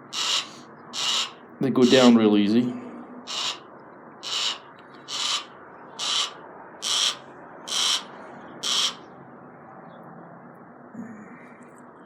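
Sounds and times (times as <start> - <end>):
owl hissing: 0.0 - 2.1, 3.3 - 3.6, 4.2 - 9.0.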